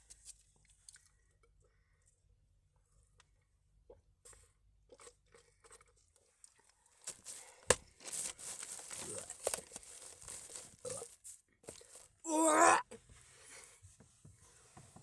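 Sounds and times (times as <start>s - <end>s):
rustling and crinkling handling: 6.3s - 12.4s.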